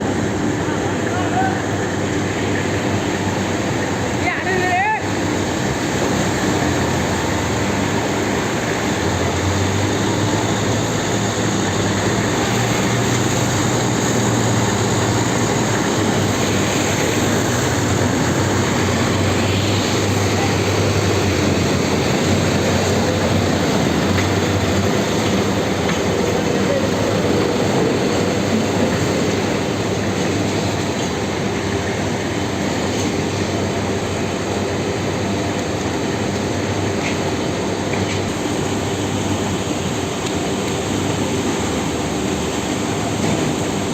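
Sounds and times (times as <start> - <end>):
tractor engine hum: 5.1 - 32.8.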